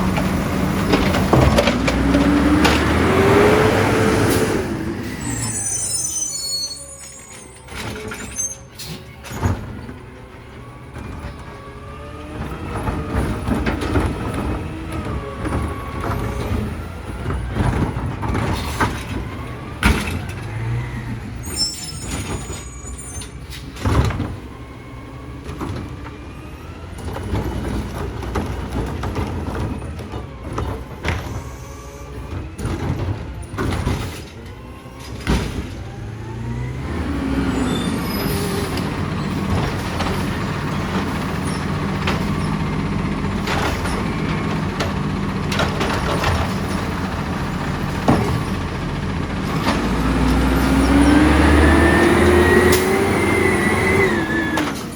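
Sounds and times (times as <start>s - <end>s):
metal clanks and knocks: 0.0s - 3.0s, 38.7s - 50.4s
garbage truck diesel engine: 0.0s - 54.9s.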